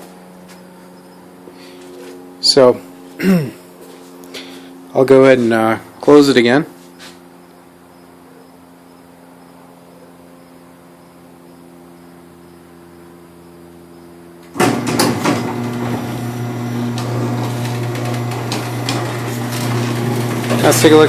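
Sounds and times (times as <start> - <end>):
garage door opener motor rattling: 14.4 - 21.0.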